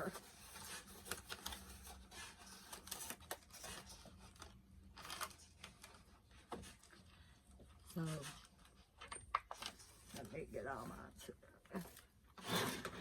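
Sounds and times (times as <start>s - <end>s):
packaging rustling: 0.0s - 7.1s.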